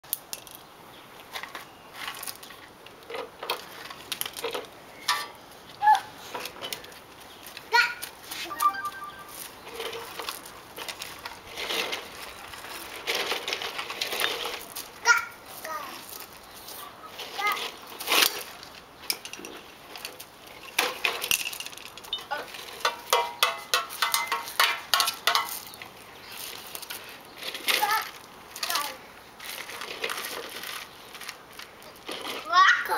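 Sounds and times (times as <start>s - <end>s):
rocks crunching and clattering: 9.4s - 15.1s.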